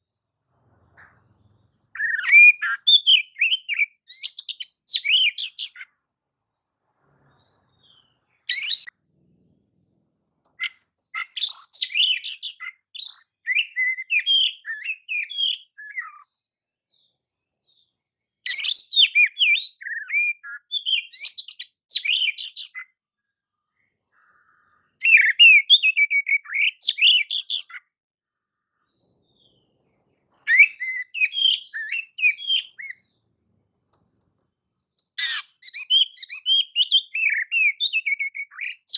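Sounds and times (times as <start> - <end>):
bird singing high-pitched phrases: 1.9 - 5.9, 7.5 - 8.9, 10.5 - 23.0, 23.6 - 27.9, 30.4 - 33.3, 35.1 - 38.9.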